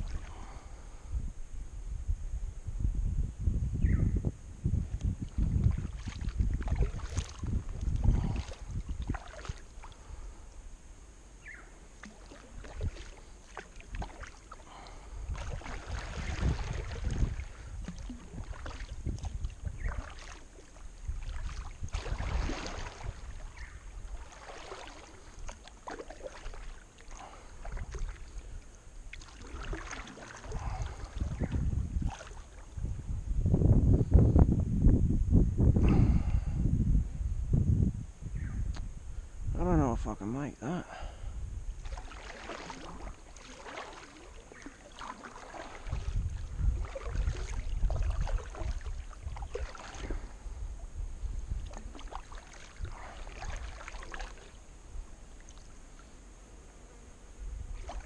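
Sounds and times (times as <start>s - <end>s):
kayak paddle splashing: 0.0s - 0.8s, 5.3s - 10.6s, 11.4s - 32.8s, 41.7s - 56.1s, 57.7s - 58.0s
wind rumbling on microphone: 0.0s - 58.0s.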